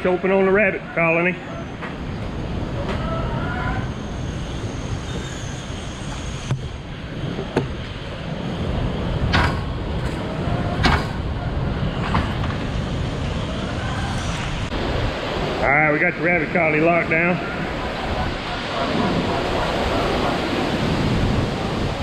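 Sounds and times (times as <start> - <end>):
wind roaring and buffeting microphone: 0.0 - 22.0
sharp knocks and clanks: 9.2 - 11.3, 12.0 - 12.8.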